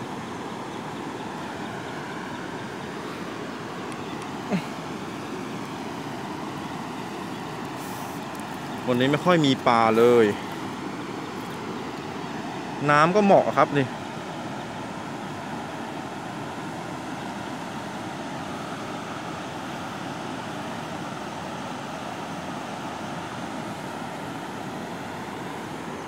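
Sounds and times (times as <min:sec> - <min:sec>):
even hiss: 0:07.6 - 0:10.5.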